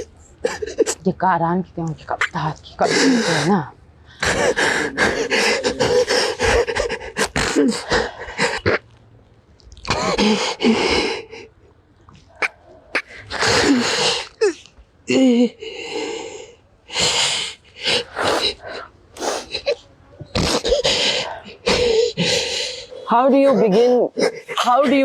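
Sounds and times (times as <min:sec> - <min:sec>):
person sobbing: 0:00.0 - 0:01.0, 0:02.8 - 0:08.7
wavering voiced cries: 0:02.2 - 0:08.6.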